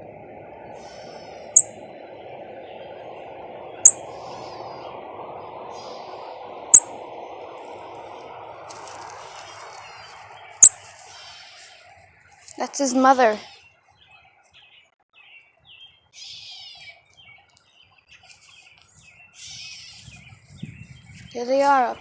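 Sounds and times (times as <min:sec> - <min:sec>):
steady background hum: 0:00.0 - 0:13.4
faint bird twittering: 0:00.0 - 0:22.0
high loud bird chirps: 0:00.8 - 0:01.8, 0:03.8 - 0:04.6, 0:08.7 - 0:12.6.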